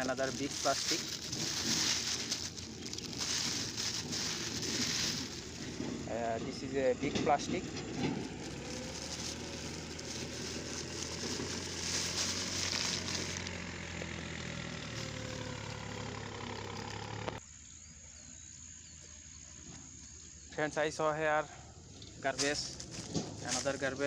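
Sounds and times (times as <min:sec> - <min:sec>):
man talking: 0:00.0 - 0:01.1, 0:06.1 - 0:07.7, 0:22.2 - 0:22.8, 0:23.4 - 0:24.0
motor engine humming: 0:00.0 - 0:17.4.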